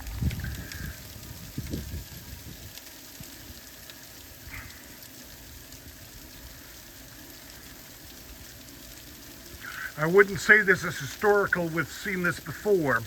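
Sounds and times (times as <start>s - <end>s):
freezing rain hiss: 0.0s - 13.0s
ice pellets ticking: 0.0s - 13.0s.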